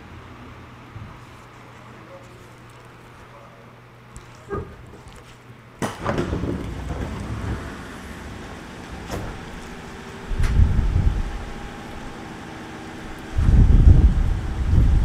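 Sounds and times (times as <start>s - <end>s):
train rumbling: 5.9s - 15.0s.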